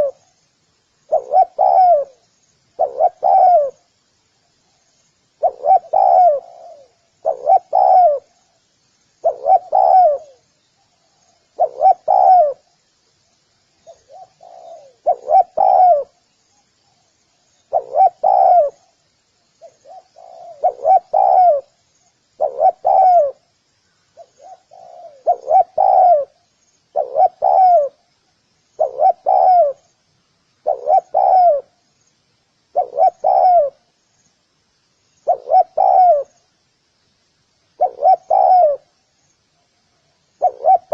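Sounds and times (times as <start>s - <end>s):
dove cooing: 0.0s - 0.3s, 1.1s - 3.9s, 5.4s - 8.4s, 9.2s - 12.7s, 13.8s - 16.2s, 17.7s - 19.0s, 19.6s - 21.8s, 22.4s - 23.5s, 24.2s - 28.1s, 28.8s - 29.9s, 30.6s - 31.8s, 32.7s - 33.9s, 35.2s - 36.4s, 37.8s - 38.9s, 40.4s - 40.9s.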